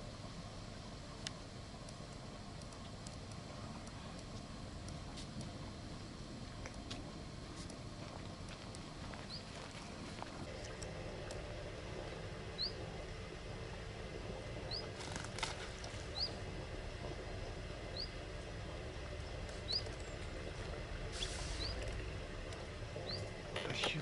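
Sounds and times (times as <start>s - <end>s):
low steady rumble: 0.0s - 24.0s
small bird chirping: 12.6s - 12.8s, 14.7s - 14.9s, 16.1s - 16.4s, 17.9s - 18.2s, 19.6s - 20.2s, 21.6s - 21.8s, 23.0s - 23.3s.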